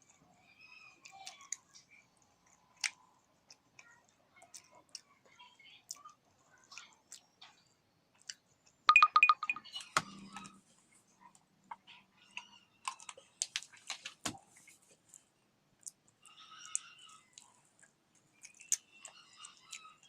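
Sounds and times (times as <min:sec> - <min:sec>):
eating crunches and clicks: 0:01.0 - 0:05.2, 0:08.2 - 0:08.8, 0:12.4 - 0:15.2, 0:15.8 - 0:20.0.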